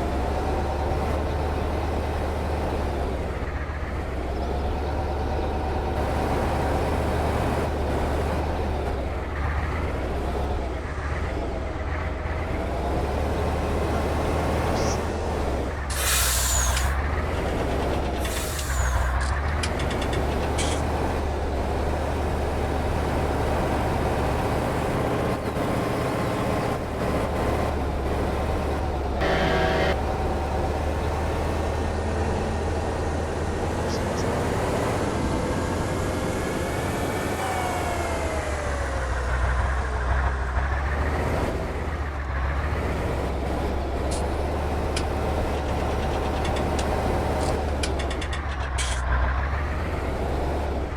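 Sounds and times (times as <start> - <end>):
truck diesel engine revving: 0.0 - 50.9
air brake hiss: 15.9 - 17.0, 18.2 - 19.2
short pitched tone: 29.2 - 30.0.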